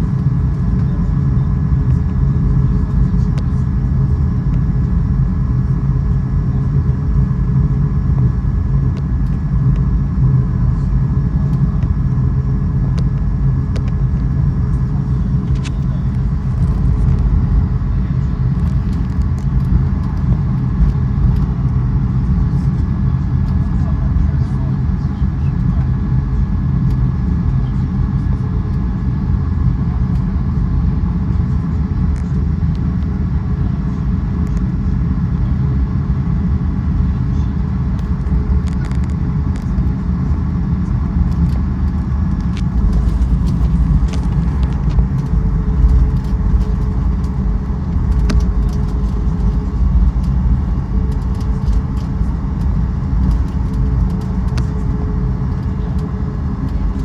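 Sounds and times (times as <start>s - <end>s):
vehicle rumble from inside: 0.0s - 57.0s
light rattles and clicks: 41.3s - 57.0s.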